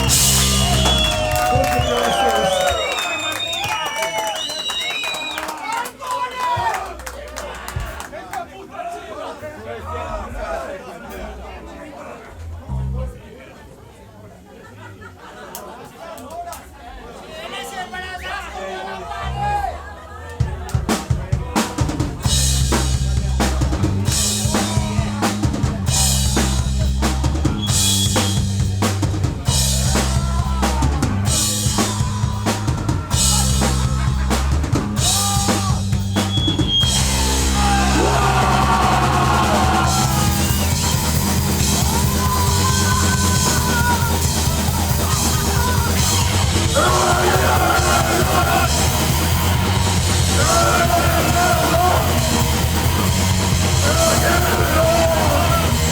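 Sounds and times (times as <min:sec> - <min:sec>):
punk band playing live: 0:00.0 - 0:03.6, 0:20.4 - 0:55.9.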